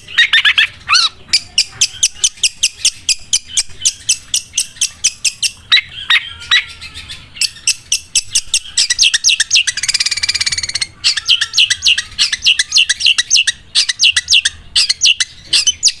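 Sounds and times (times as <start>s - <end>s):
bird singing high chirps: 0.0s - 16.0s.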